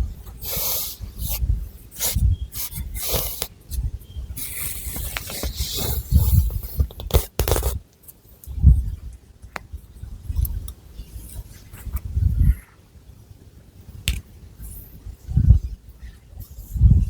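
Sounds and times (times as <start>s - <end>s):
fingernails scratching hair: 4.5s - 7.8s.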